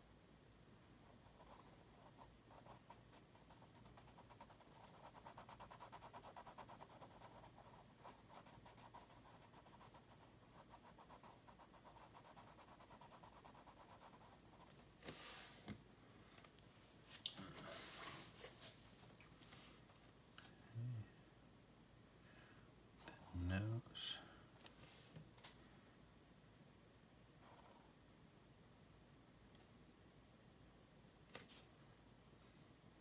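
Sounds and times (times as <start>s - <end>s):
pen strokes on paper: 1.0s - 15.6s.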